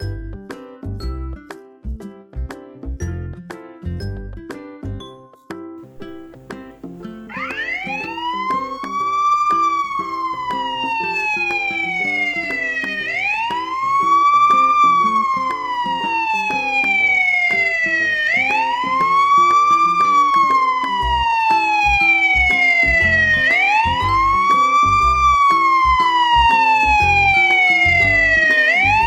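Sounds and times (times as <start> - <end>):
background music: 5.8 - 29.0
wailing siren: 7.3 - 29.0.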